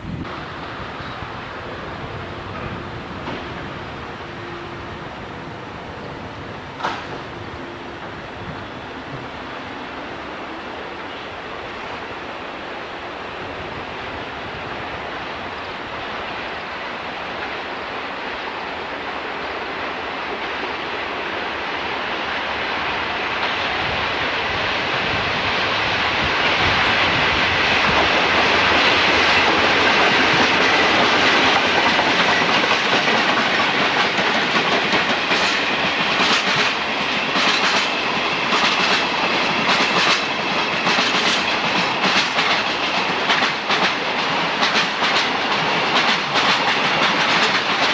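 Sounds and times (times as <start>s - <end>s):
train rumbling past: 0.0s - 47.9s
wheels clicking over rail joints: 6.7s - 7.4s, 27.8s - 47.9s.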